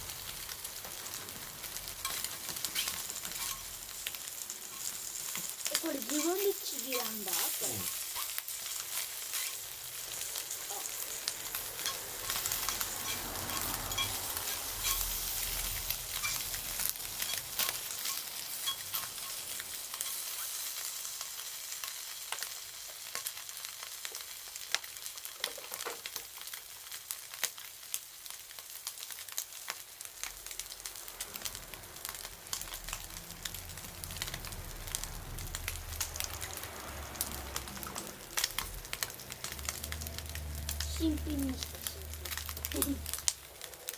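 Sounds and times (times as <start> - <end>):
campfire crackling: 0.0 - 43.9
food sizzling in a pan: 0.0 - 43.9.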